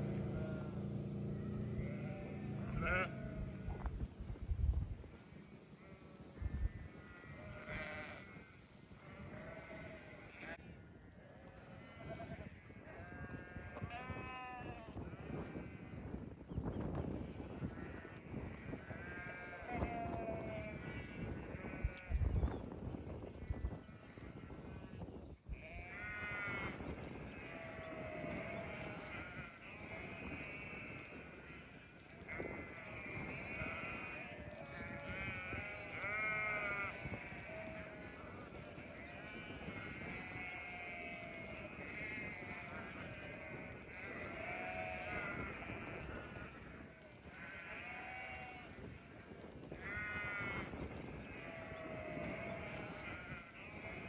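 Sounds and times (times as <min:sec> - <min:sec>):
sheep bleating: 0:01.5 - 0:03.6, 0:07.0 - 0:10.7, 0:11.3 - 0:15.8, 0:17.7 - 0:22.2, 0:25.6 - 0:31.5, 0:32.3 - 0:46.7, 0:47.4 - 0:48.7, 0:49.8 - 0:54.0.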